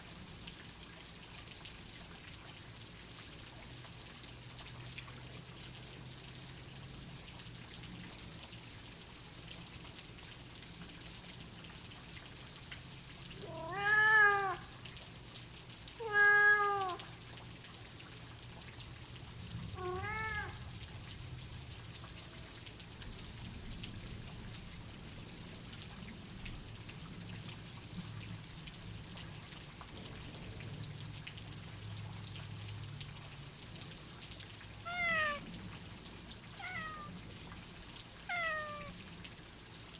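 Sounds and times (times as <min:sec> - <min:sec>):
steady rain: 0:00.0 - 0:39.9
cat meowing: 0:13.4 - 0:14.7, 0:16.0 - 0:17.1, 0:19.8 - 0:20.6, 0:34.8 - 0:35.5, 0:36.6 - 0:37.2, 0:38.3 - 0:39.0.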